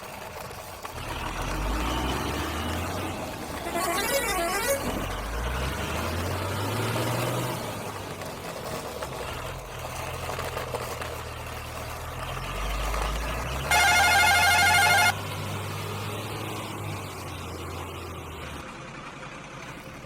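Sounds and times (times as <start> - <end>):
toy engine rumble: 0.0 - 15.2.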